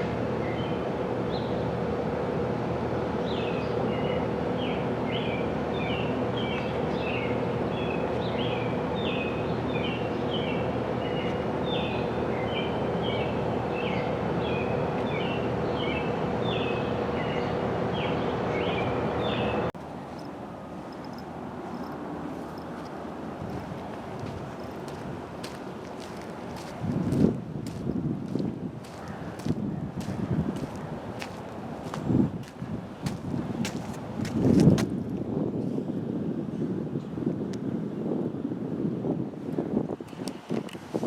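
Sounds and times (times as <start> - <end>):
diesel engine running: 19.8 - 34.5.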